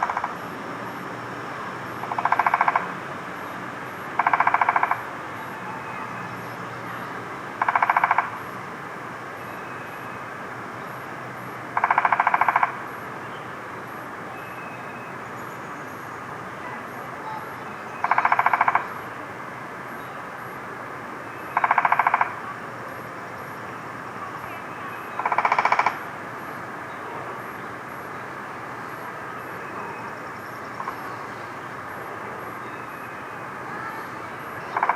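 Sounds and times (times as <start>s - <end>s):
woodpecker drumming on wood: 0.0s - 0.4s, 2.0s - 2.9s, 4.2s - 5.0s, 7.6s - 8.4s, 11.8s - 12.8s, 18.0s - 18.9s, 21.6s - 22.4s, 25.2s - 26.0s.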